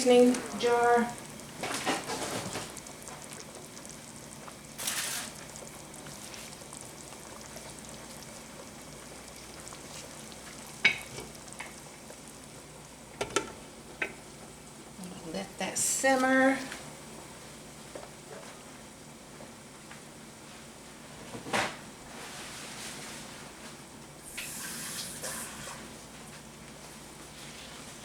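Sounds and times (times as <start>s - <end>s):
sauce sizzling in a pan: 0.0s - 14.6s.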